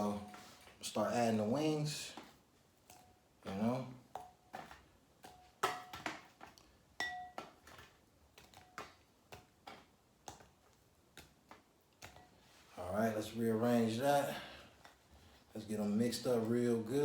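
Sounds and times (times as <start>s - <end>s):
bowl ringing: 7.0s - 7.4s.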